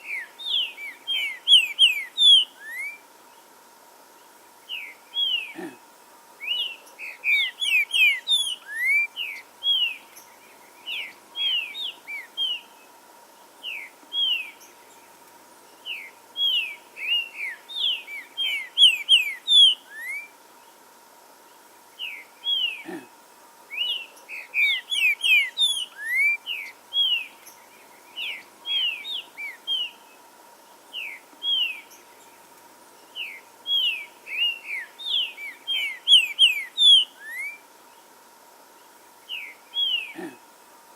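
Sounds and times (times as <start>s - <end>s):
bird whistling song: 0.0s - 3.0s, 6.4s - 12.7s, 13.6s - 14.7s, 15.8s - 20.3s, 23.7s - 27.6s, 28.2s - 30.0s, 30.9s - 32.0s, 33.2s - 37.6s, 39.3s - 40.2s.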